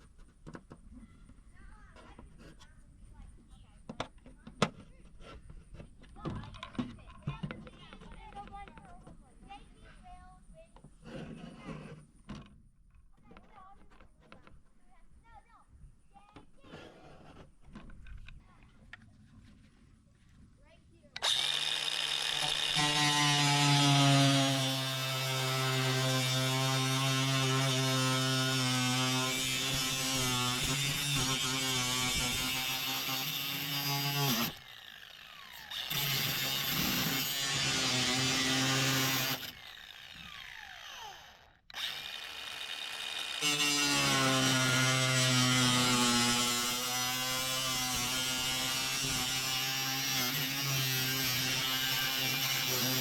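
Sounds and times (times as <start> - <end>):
electric power tool buzzing: 21.2 - 53.0.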